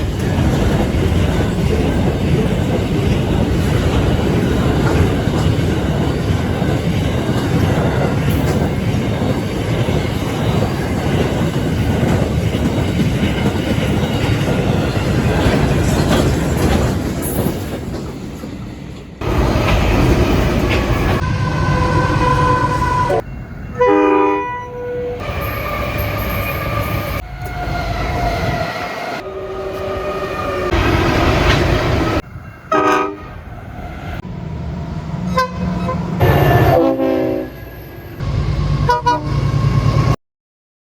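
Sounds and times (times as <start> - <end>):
train rumbling: 0.0 - 40.2
train horn blasts: 21.2 - 26.6, 29.2 - 30.8, 32.7 - 33.4, 35.3 - 37.6, 38.8 - 39.5.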